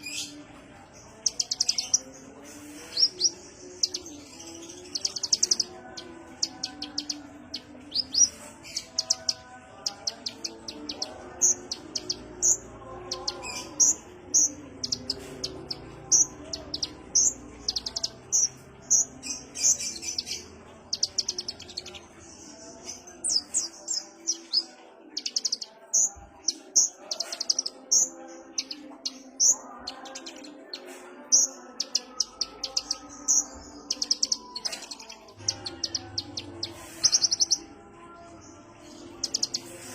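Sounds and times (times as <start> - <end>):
sunbird chirping and twittering: 1.1 - 37.6, 38.8 - 39.9.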